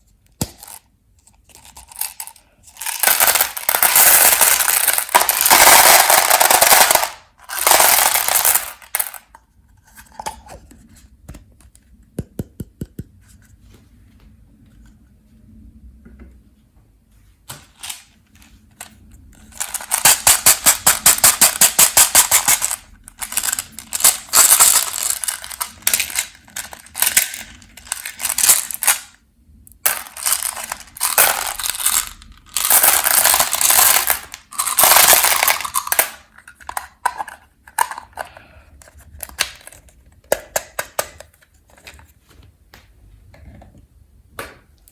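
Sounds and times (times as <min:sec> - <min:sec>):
candy crunching and clattering: 0:00.4 - 0:09.3, 0:18.8 - 0:29.2, 0:29.8 - 0:42.0.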